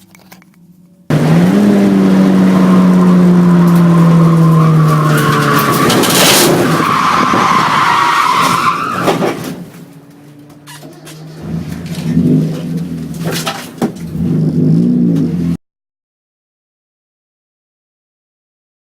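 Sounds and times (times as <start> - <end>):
race car engine at high revs: 0.9 - 15.6
tyres squealing: 2.1 - 14.2.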